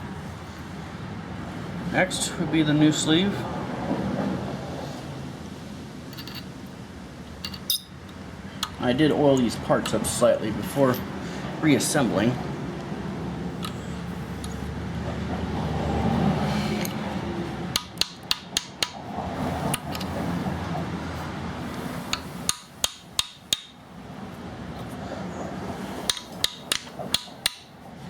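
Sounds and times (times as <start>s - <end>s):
scraping and handling noise: 6.1s - 6.6s, 7.3s - 8.2s, 19.4s - 22.9s
metal-on-metal taps: 6.2s - 6.5s, 7.4s - 8.8s, 22.1s - 23.8s, 26.1s - 27.7s.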